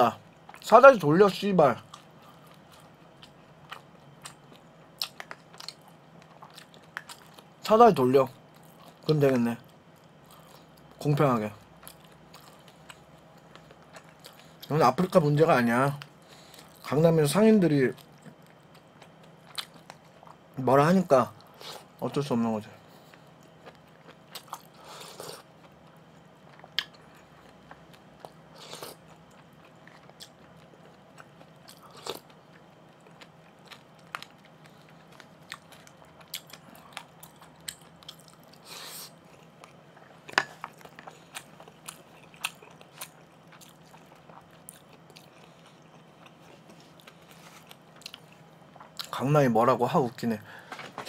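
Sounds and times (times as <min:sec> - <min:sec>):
faint steady hum: 0:00.0 - 0:51.0
chewing and mouth sounds: 0:01.8 - 0:07.6, 0:11.6 - 0:15.2, 0:17.9 - 0:20.6, 0:22.9 - 0:49.2.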